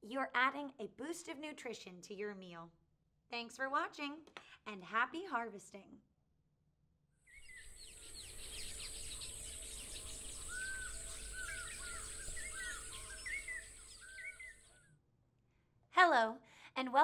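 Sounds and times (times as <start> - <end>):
birds chirping and twittering: 7.3 - 14.9
steady high hiss: 7.7 - 14.3.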